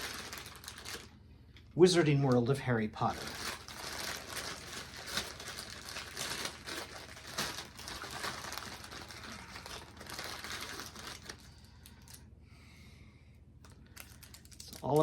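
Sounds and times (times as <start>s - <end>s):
bag crinkling: 0.0s - 1.2s, 3.0s - 12.2s, 13.7s - 15.0s.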